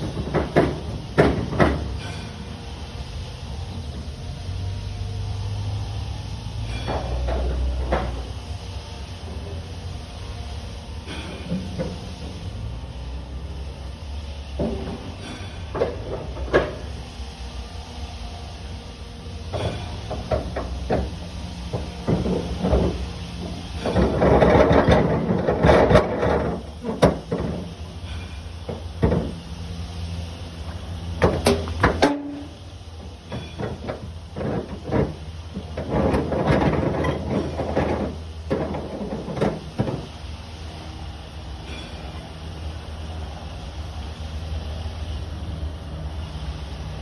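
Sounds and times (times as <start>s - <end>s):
metal clanks and rattles: 0.0s - 2.4s, 6.7s - 8.4s, 14.6s - 16.9s, 19.5s - 29.5s, 30.6s - 40.3s
low engine hum: 0.0s - 47.0s.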